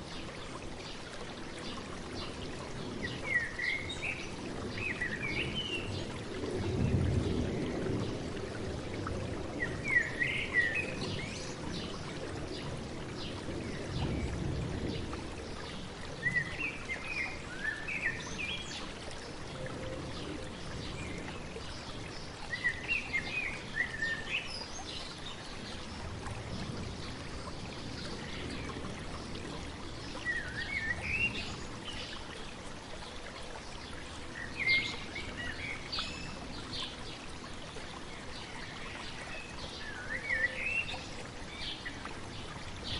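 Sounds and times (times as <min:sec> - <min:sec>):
stream babbling: 0:00.0 - 0:42.9
songbird chirping: 0:37.9 - 0:42.9.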